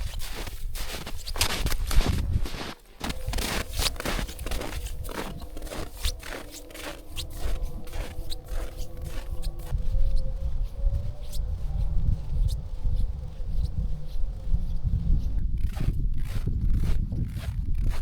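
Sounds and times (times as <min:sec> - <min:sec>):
snow and ice crunching: 0:00.0 - 0:10.2
faint steady tones: 0:03.0 - 0:15.6.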